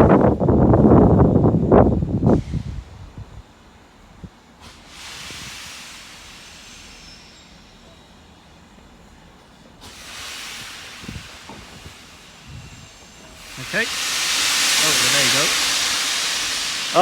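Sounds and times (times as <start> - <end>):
steam locomotive hissing: 4.5 - 17.0.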